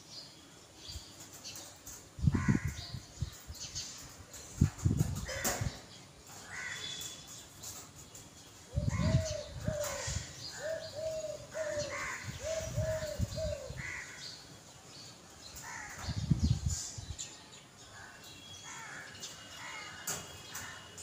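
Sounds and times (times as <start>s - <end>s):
bird calls: 1.3s - 17.0s.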